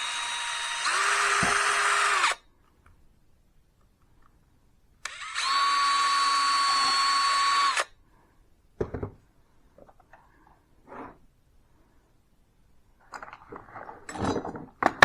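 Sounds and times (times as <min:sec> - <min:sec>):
electric drill motor whining: 0:00.0 - 0:02.4, 0:05.1 - 0:07.9.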